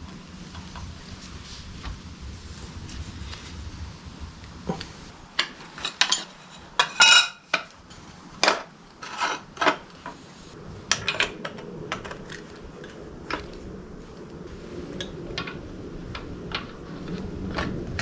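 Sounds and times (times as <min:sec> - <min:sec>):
metal tools clinking: 0:04.7 - 0:10.1.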